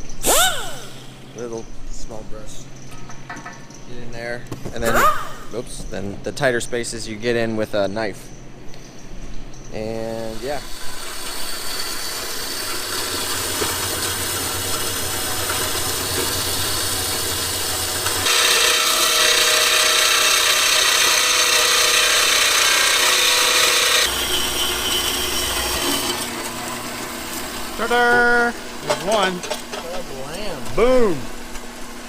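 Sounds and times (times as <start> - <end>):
tool rasping on metal: 10.2 - 26.3.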